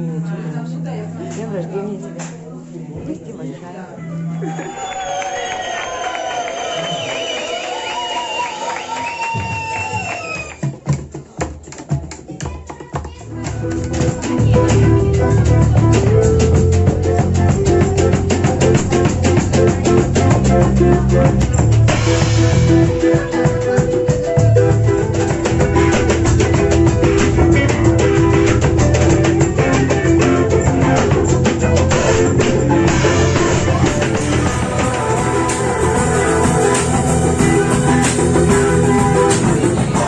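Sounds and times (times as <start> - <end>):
guitar music with bass and beat: 13.3 - 40.0.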